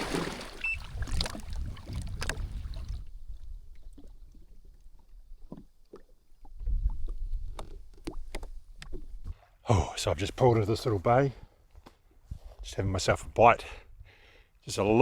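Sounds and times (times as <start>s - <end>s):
water slapping against hull: 0.0s - 3.1s.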